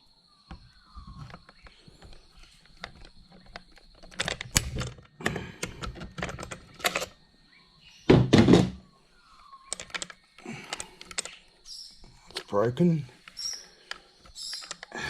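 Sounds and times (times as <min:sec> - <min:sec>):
hard parts and tools clicking: 0:00.5 - 0:07.2, 0:09.7 - 0:11.5, 0:13.2 - 0:15.0
loud thunk: 0:08.1 - 0:08.8.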